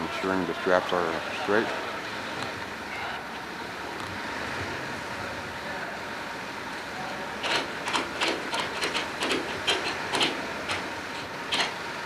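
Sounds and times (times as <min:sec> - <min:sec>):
strap ratchet clicking: 0:07.4 - 0:11.8.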